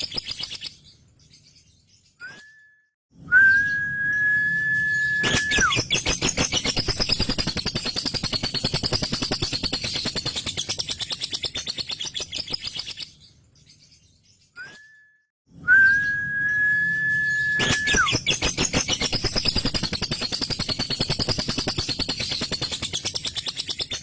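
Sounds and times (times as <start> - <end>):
high bird whistle: 2.2 - 9.0, 14.6 - 23.4.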